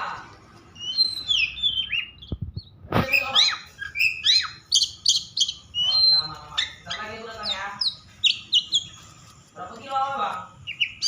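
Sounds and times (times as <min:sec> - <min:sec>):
bird singing whistles and chirps: 0:00.8 - 0:09.0.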